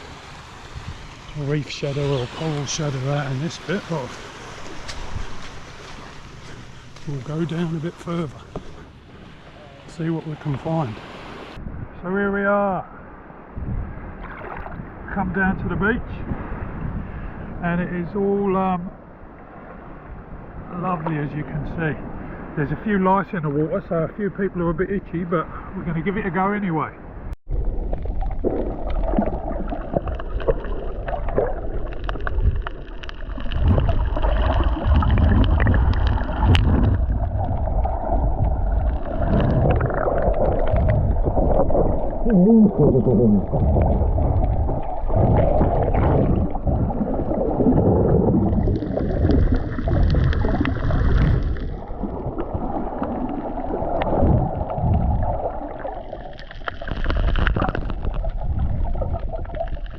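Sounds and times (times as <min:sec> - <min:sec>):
muffled underwater sloshing: 0:00.0 - 0:11.6, 0:27.5 - 0:59.9.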